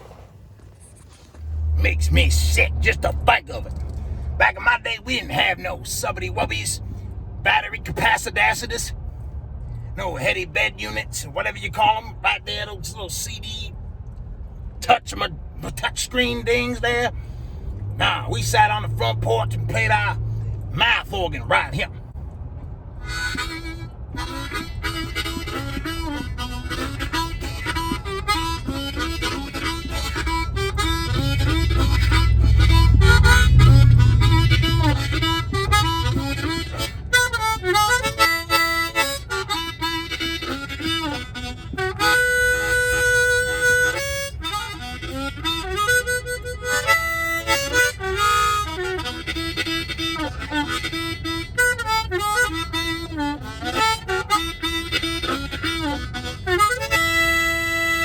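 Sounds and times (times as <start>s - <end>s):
harmonica playing chords: 1.4s - 8.6s, 15.8s - 58.0s
low rumble: 29.9s - 37.5s.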